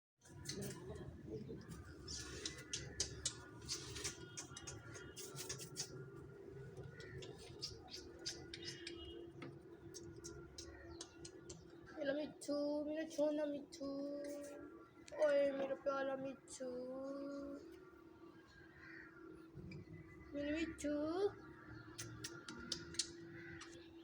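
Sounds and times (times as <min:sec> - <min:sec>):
parrot clicks and scratches: 0:02.1 - 0:06.0.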